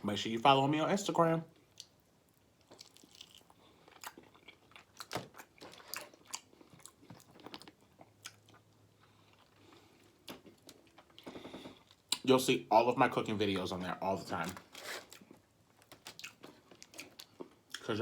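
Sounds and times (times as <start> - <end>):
person chewing food: 1.6 - 12.2, 14.6 - 17.9.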